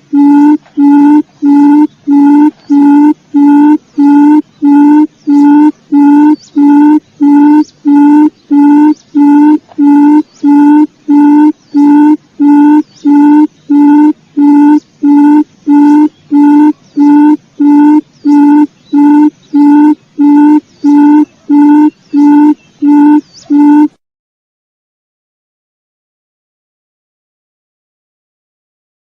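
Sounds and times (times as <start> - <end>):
quail call low hooting notes: 0.0 - 24.0.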